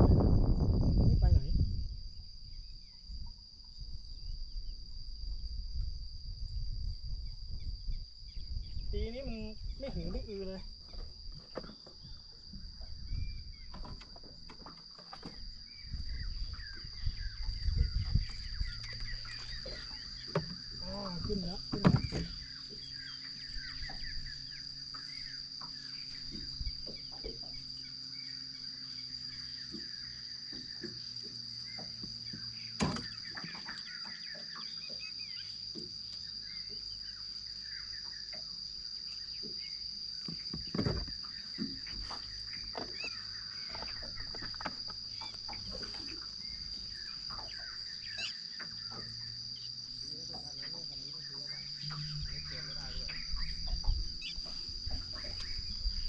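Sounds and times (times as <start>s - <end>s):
insects chirring: 0.0s - 56.0s
bird chirps: 7.2s - 38.5s, 41.2s - 56.0s
sharp knocks: 32.8s - 33.2s.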